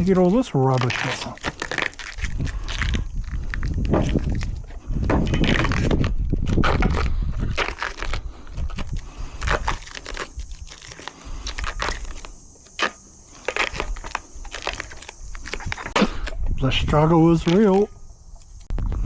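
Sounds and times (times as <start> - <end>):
packaging crinkling and ripping: 0.0 - 16.4, 17.3 - 18.7
sharp crackles: 0.0 - 19.0.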